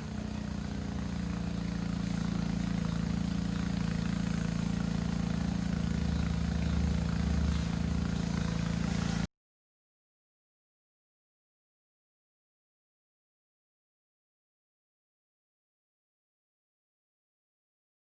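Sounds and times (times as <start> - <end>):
low machine hum: 0.0 - 9.3.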